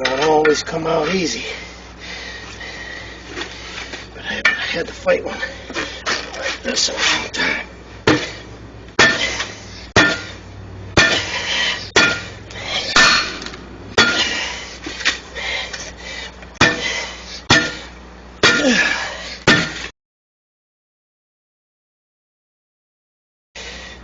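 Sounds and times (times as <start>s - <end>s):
metal striking metal: 9.0s - 10.4s, 11.0s - 14.4s, 16.6s - 16.9s, 17.5s - 18.8s.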